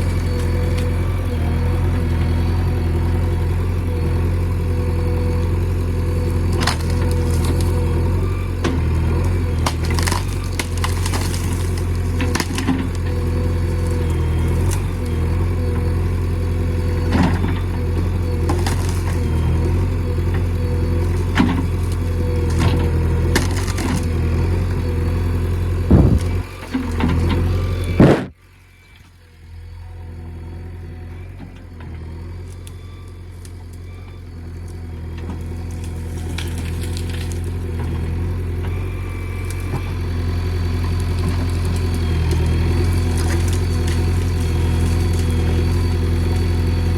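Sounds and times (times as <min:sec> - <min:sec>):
diesel engine running: 0:00.0 - 0:46.9
sharp cracks and knocks: 0:09.5 - 0:13.0.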